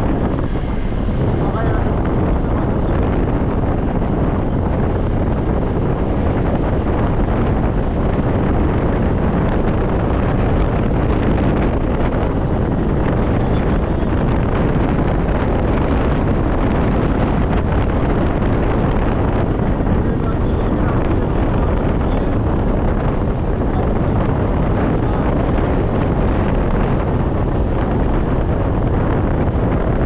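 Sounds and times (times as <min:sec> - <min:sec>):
wind blasting microphone: 0:00.0 - 0:30.0.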